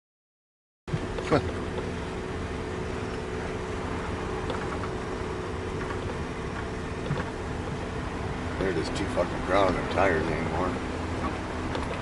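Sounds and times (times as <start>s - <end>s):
vehicle engine idling: 0.9s - 12.0s.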